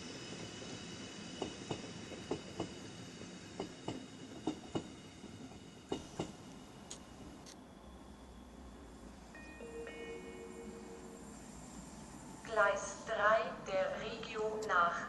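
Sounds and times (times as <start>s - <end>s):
train wheels clicking over rail joints: 1.3s - 2.8s, 3.6s - 7.6s.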